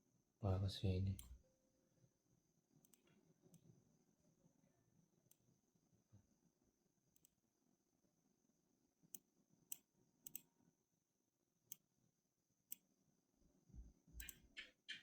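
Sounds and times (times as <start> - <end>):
computer clicks: 14.2 - 15.0.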